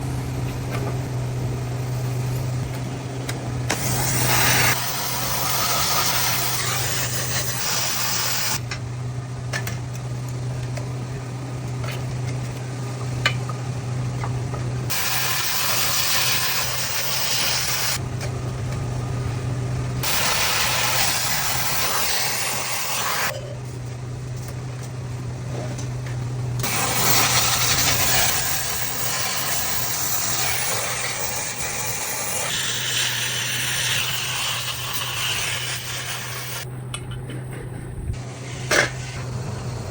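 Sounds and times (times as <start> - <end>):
low machine hum: 0.0 - 7.6, 8.5 - 15.2, 18.0 - 20.8, 23.3 - 31.2, 36.6 - 39.9
welding arc crackling and hissing: 3.7 - 8.6, 14.9 - 18.0, 20.0 - 23.4, 26.6 - 36.7.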